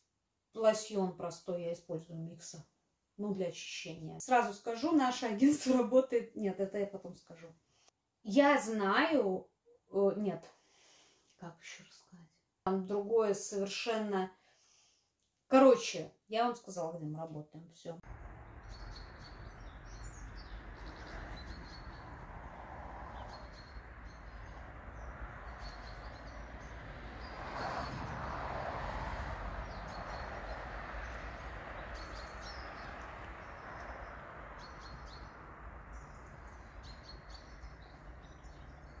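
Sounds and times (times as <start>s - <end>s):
outdoor background hiss: 18.0s - 39.0s
small birds chirping: 18.0s - 39.0s.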